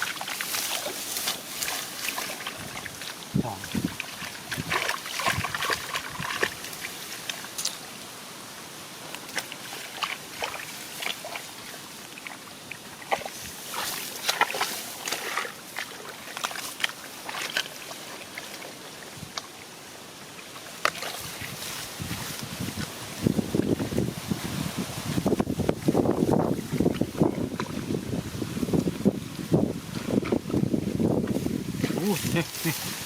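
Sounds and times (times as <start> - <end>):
shallow water splashing: 0.0 - 7.9, 9.2 - 19.7.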